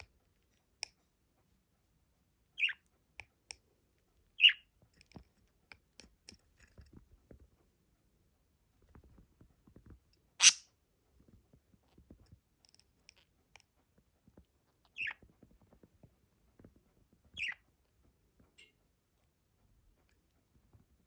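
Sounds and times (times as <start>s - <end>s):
parrot chirping: 2.6s - 2.8s, 4.4s - 4.6s, 10.4s - 10.6s, 17.4s - 17.6s
faint clicks and scratching: 2.8s - 21.0s.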